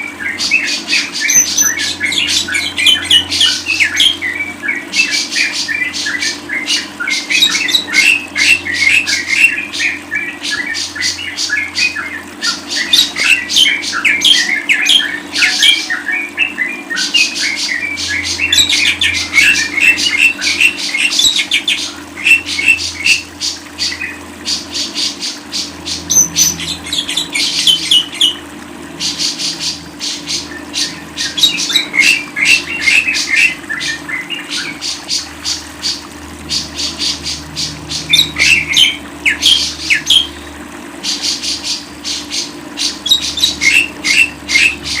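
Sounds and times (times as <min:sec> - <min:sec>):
bird chattering trills: 0:00.1 - 0:28.4
bird chirps: 0:00.3 - 0:24.2, 0:25.6 - 0:28.4.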